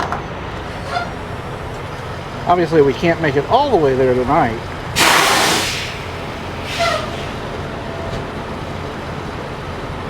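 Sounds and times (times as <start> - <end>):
diesel truck engine hum: 0.0 - 10.0
brief hiss: 5.0 - 7.5.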